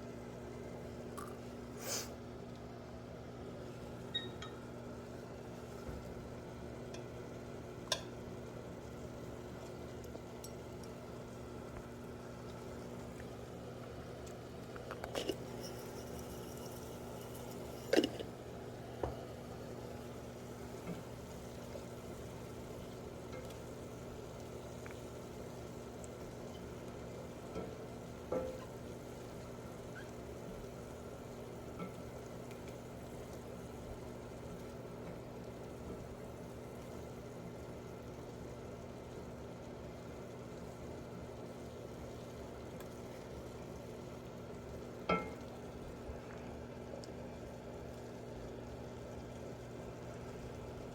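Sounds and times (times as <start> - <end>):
low kitchen hum: 0.0 - 50.9
food sizzling in a skillet: 1.7 - 2.2, 3.6 - 45.9
utensil clattering against pan: 15.2 - 18.3.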